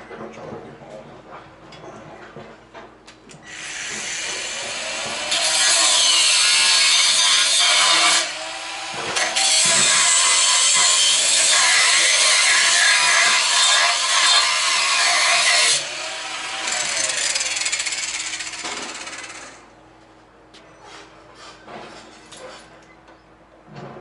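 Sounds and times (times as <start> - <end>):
angle grinder cutting metal: 3.5 - 19.6.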